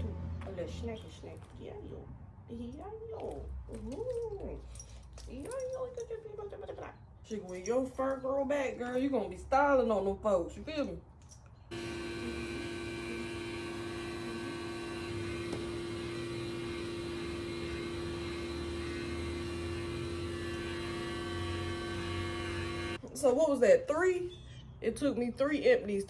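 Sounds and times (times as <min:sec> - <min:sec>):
electric motor humming: 0:11.7 - 0:23.0.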